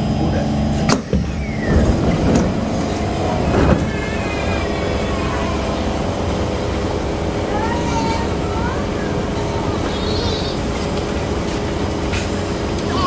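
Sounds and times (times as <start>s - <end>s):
train wheels rumbling on track: 0.0s - 13.0s
loud knocks: 0.9s - 5.0s
faint gliding whine: 1.0s - 11.5s.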